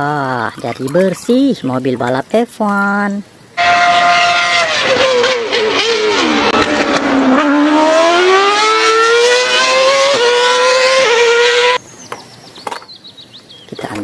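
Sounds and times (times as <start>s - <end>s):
race car engine: 3.6s - 11.8s.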